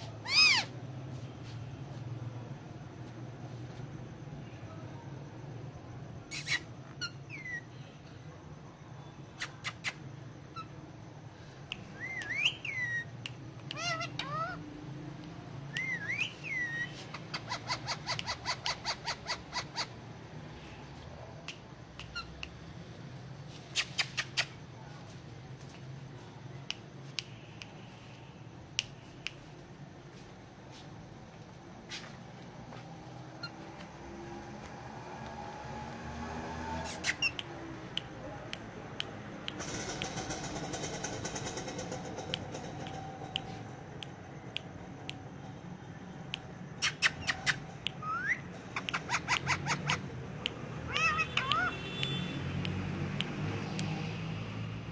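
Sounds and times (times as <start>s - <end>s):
parakeet chirping: 0.2s - 0.7s, 6.3s - 7.7s, 12.0s - 13.1s, 13.7s - 14.6s, 15.8s - 20.0s, 36.8s - 37.4s, 46.8s - 50.1s, 50.9s - 52.2s
parakeet clicks and chirps: 11.7s - 14.6s, 15.2s - 20.0s, 21.4s - 22.6s, 23.7s - 24.6s, 33.4s - 33.6s, 36.8s - 45.2s, 46.3s - 54.2s
parakeet rising whistle: 50.9s - 51.8s.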